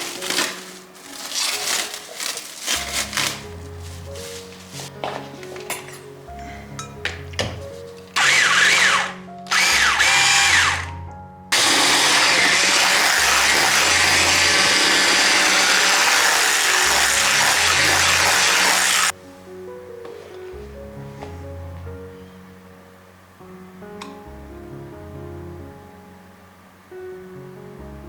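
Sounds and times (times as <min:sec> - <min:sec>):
soft background music: 0:00.0 - 0:28.0
small electric motor running: 0:08.2 - 0:10.9, 0:11.5 - 0:19.1.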